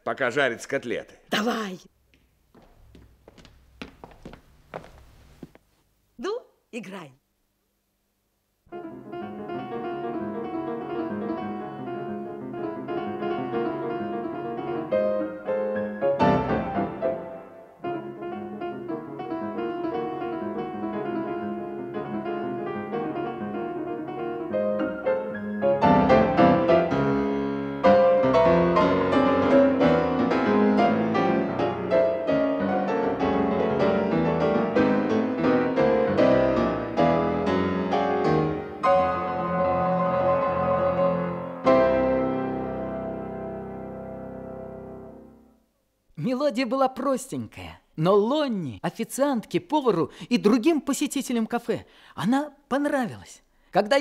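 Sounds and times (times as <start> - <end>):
old piano playing melody: 8.7 - 45.5.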